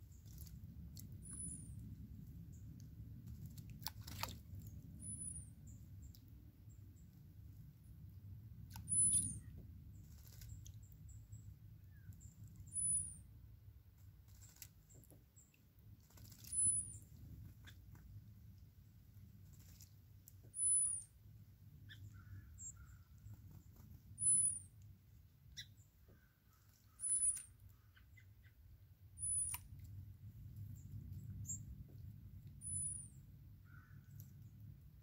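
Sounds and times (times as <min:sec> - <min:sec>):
bird splashing in a puddle: 0:00.2 - 0:01.2, 0:03.2 - 0:04.8, 0:10.0 - 0:10.8, 0:14.0 - 0:14.9, 0:15.9 - 0:17.0, 0:19.5 - 0:20.0.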